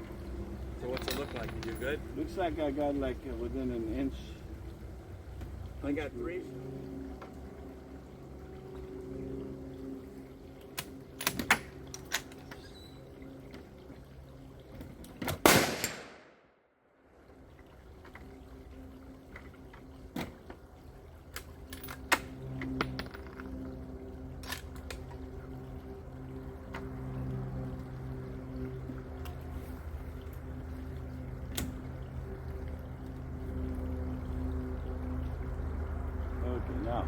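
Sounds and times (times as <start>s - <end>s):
low hum: 0.0s - 37.0s
rifle handling clicks and knocks: 0.8s - 1.9s
rifle shot: 15.4s - 16.4s.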